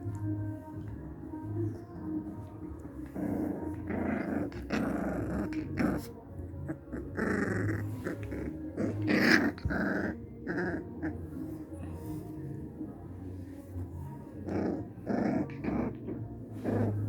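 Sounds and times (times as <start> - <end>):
dog growling and snarling: 2.3 - 12.4, 13.6 - 17.0.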